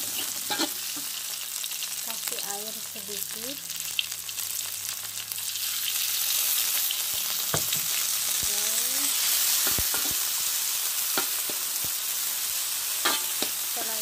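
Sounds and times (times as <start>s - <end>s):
metal spatula scraping wok: 0.0s - 1.1s, 13.0s - 13.9s
vegetables sizzling in oil: 0.0s - 14.0s.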